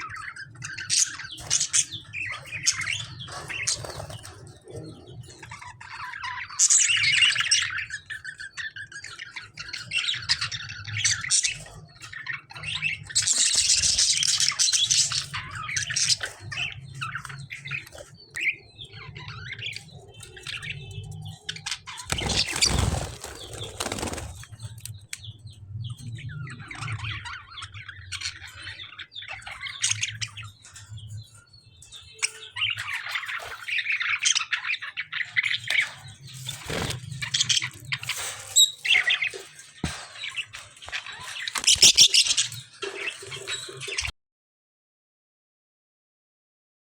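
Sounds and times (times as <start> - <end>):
small birds chirping: 0.0 - 44.1
loud rustling burst: 22.2 - 24.5.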